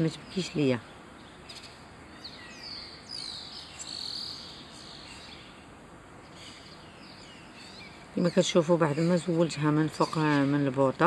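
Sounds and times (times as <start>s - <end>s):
low background hiss: 0.0s - 11.0s
small birds twittering: 0.0s - 11.0s.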